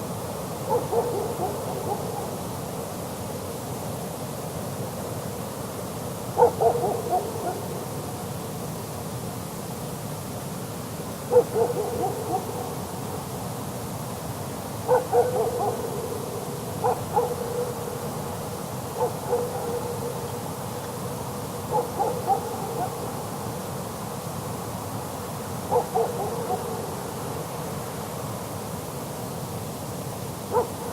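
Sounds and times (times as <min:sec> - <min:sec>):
background hiss: 0:00.0 - 0:30.9
distant dog barking: 0:00.6 - 0:02.5, 0:06.4 - 0:07.9, 0:11.3 - 0:13.0, 0:14.9 - 0:20.5, 0:21.6 - 0:23.3, 0:25.7 - 0:27.2, 0:30.5 - 0:30.9.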